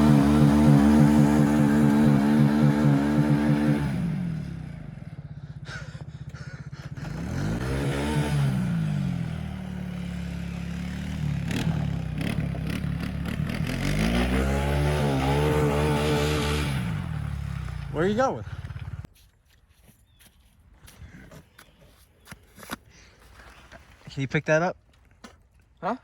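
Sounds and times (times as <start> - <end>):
atv engine revving: 0.0 - 19.1.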